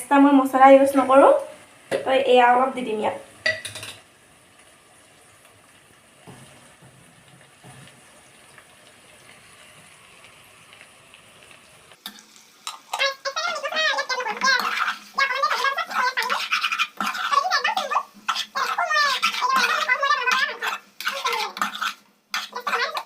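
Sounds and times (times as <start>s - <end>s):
spatula scraping metal pan: 12.1s - 23.0s.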